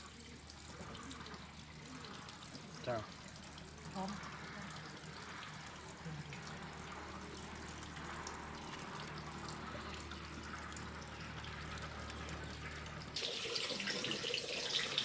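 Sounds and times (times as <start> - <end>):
water trickling: 0.0 - 15.0.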